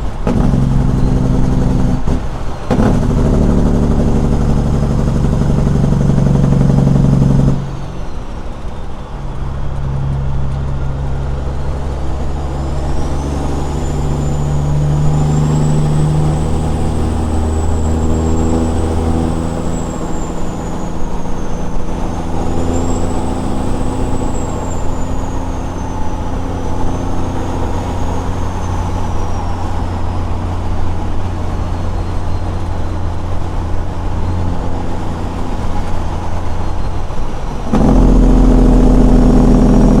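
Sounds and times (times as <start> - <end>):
diesel truck engine under load: 0.0 - 40.0
high whistle: 7.6 - 38.7.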